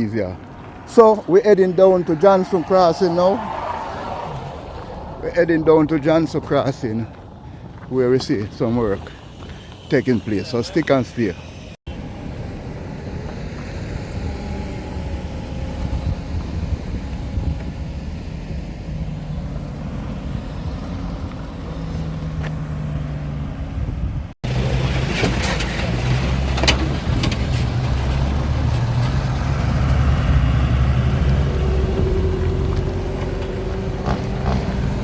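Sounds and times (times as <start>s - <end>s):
road noise: 0.0s - 35.0s
vehicle engine hum: 0.0s - 35.0s
knocks and rattles: 24.5s - 30.6s.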